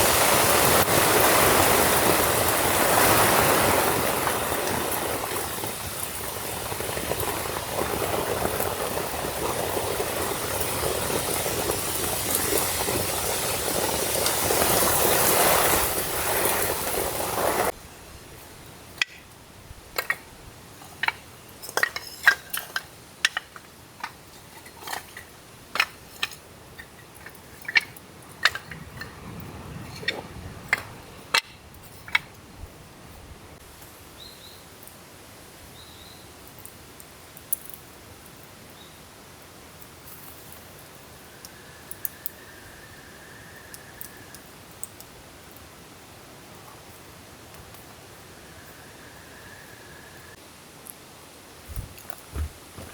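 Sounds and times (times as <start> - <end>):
forest stream rushing: 0.0 - 34.3, 47.1 - 52.9.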